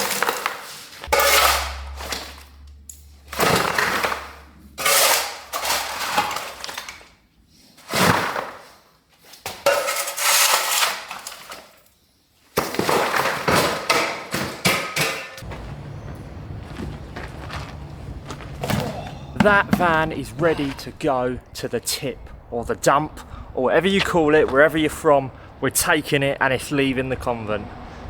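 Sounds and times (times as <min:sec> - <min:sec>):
low steady hum: 0:01.0 - 0:07.2
rubble clattering and scraping: 0:03.3 - 0:08.7, 0:09.5 - 0:11.7, 0:12.6 - 0:21.8.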